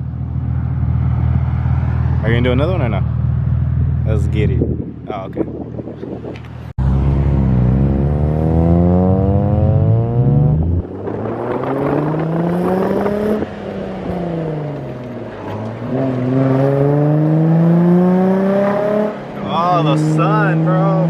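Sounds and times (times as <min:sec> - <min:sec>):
sports car engine revving: 0:06.8 - 0:21.0.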